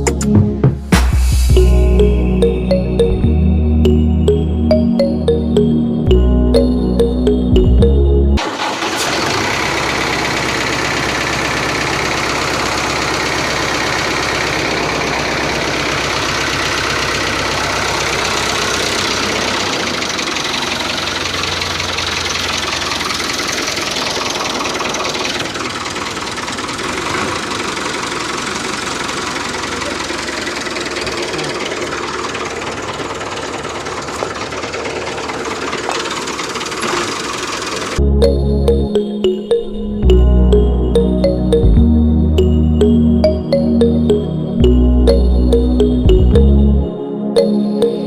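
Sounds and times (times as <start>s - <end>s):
engine idling with knocking: 8.4s - 38.0s.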